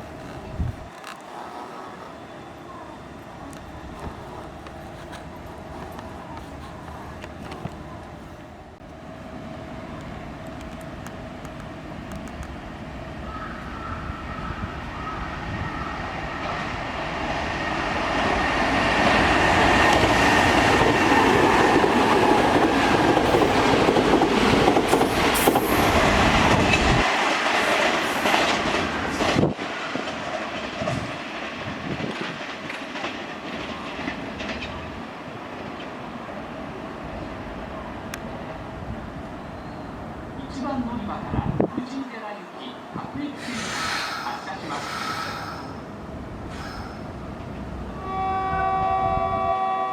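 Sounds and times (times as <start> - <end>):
train whine: 0.0 - 41.7, 42.8 - 49.9
electric train rumbling: 0.0 - 49.9
train clattering over rail joints: 19.0 - 36.0.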